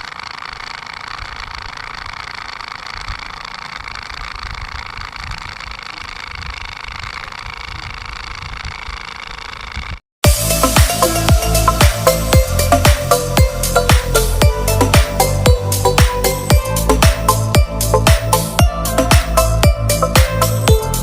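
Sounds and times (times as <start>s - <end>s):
small electric motor whining: 0.0s - 14.4s.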